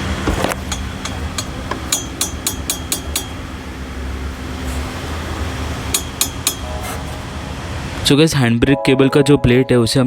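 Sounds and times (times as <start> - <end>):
steady low hum: 0.0 - 8.3
sharp metallic tool clicks: 0.7 - 3.4, 6.0 - 6.7.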